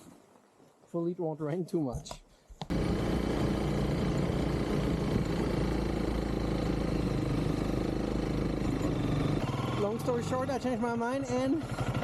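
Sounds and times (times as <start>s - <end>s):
motorcycle engine running: 2.7s - 12.0s.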